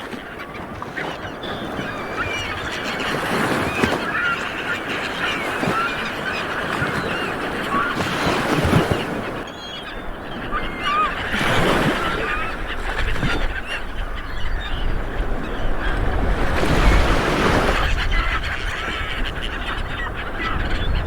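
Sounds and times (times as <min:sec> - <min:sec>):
small waves breaking on beach: 0:00.0 - 0:09.5
birds chirping: 0:00.1 - 0:21.0.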